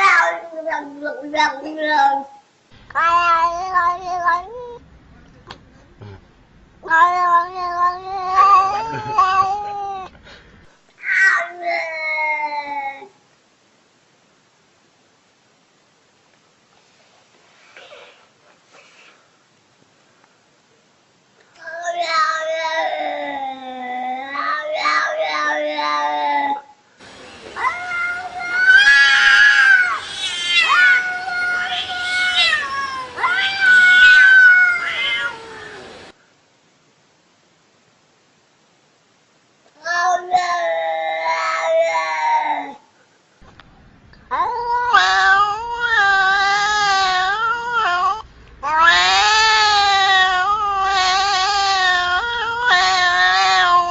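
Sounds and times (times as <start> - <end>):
cat yowling: 0.0 - 4.8, 6.8 - 10.1, 11.0 - 13.1, 21.6 - 26.7, 27.5 - 36.2, 39.8 - 42.8, 44.3 - 53.9.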